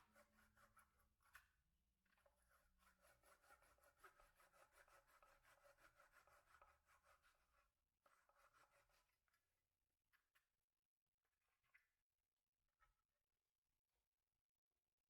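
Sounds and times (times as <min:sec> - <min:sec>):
faint rapid rubbing strokes: 0:02.6 - 0:09.2.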